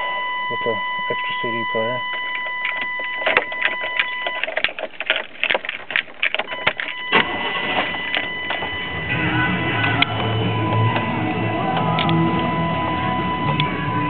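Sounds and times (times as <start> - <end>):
stereo buttons clicking: 0.0 - 7.2
steady high whine: 0.0 - 14.0
music from car stereo: 7.9 - 14.0.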